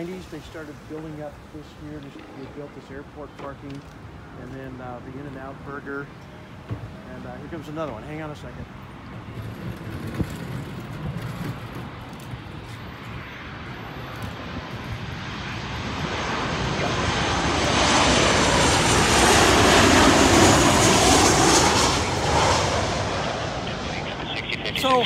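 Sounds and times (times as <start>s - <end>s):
high whine of jet engines: 0.0s - 25.0s
jet airliner passing overhead: 0.0s - 25.0s.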